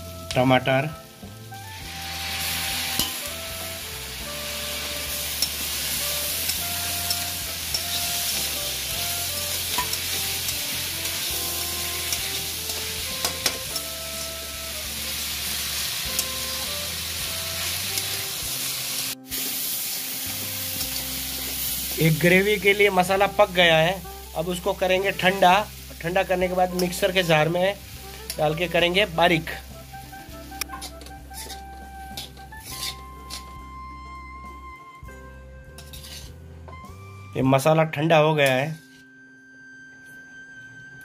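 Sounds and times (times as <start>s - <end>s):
soft melody: 0.0s - 41.0s
vegetables sizzling in oil: 0.1s - 33.8s, 35.8s - 36.3s
metal spatula scraping a pan: 4.7s - 14.4s, 30.6s - 33.6s, 35.8s - 36.4s.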